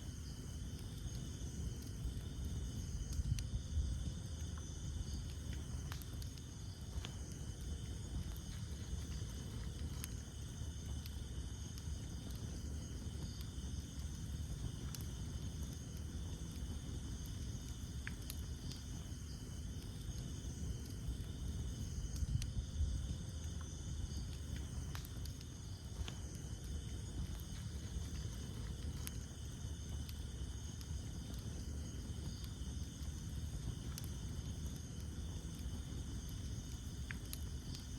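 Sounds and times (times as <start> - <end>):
campfire crackling and popping: 0.0 - 37.9
low rumble of flames: 0.0 - 37.9
night insects chirring: 0.0 - 37.9.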